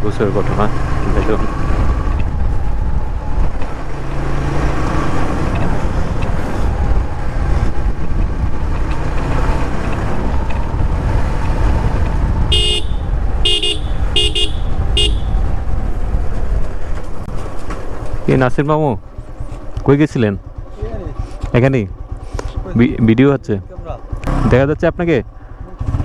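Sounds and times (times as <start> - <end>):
road vehicle running: 0.0 - 26.0
wind rumble: 0.0 - 26.0
horn honks: 12.4 - 15.6.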